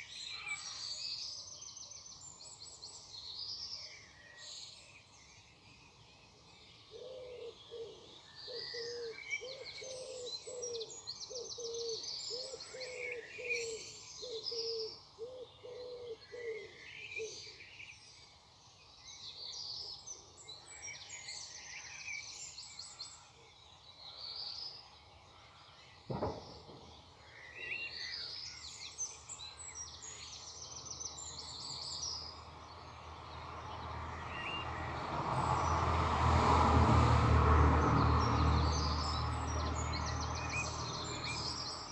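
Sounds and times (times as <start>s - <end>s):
songbirds chirping and trilling: 0.0s - 41.9s
sharp knock: 26.1s - 27.0s.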